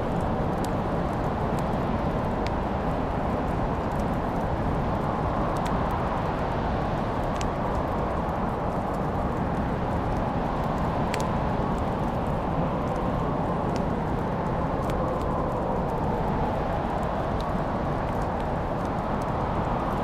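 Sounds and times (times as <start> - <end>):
wood fire crackling: 0.0 - 20.0
fire pops: 10.7 - 12.2.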